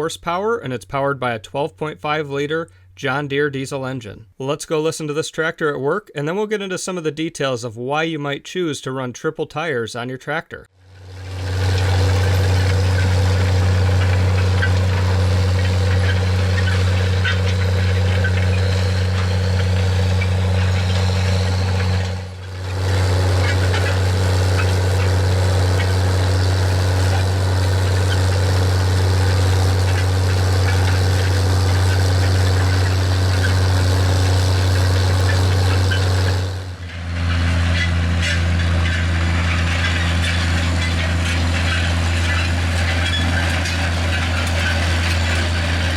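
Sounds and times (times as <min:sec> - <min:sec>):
tractor diesel engine under load: 0:10.8 - 0:45.9.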